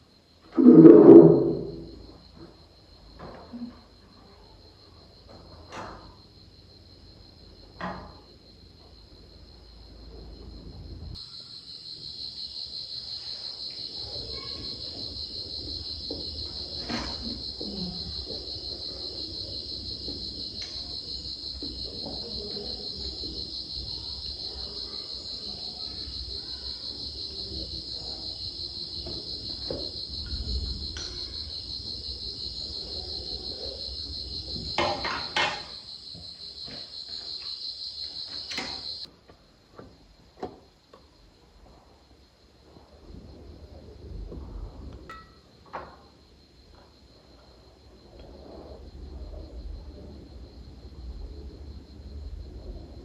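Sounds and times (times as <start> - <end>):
insects trilling: 0.0 - 39.1.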